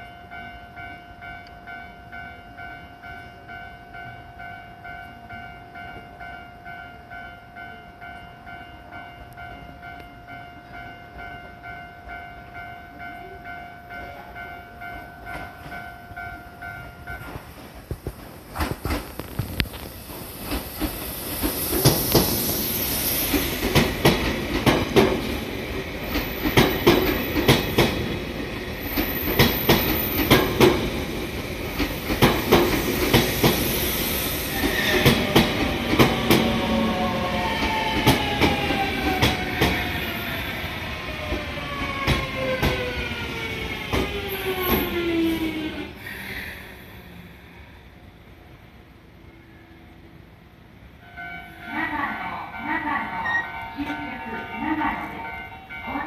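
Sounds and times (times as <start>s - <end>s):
electric train rolling in: 0.0s - 56.0s
wheels clacking over rail joints: 23.2s - 33.7s, 34.6s - 40.1s.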